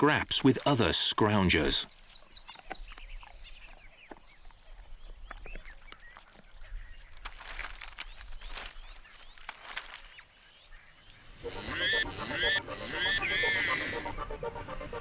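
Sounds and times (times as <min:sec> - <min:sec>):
animals scuffling: 0:00.0 - 0:11.5
animals squealing and chirping: 0:11.4 - 0:14.3.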